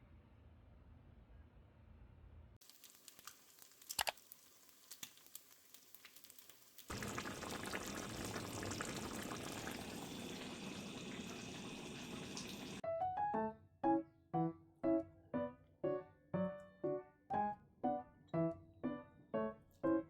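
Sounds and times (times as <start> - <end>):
hiss of cooking liquid: 2.6 - 12.8.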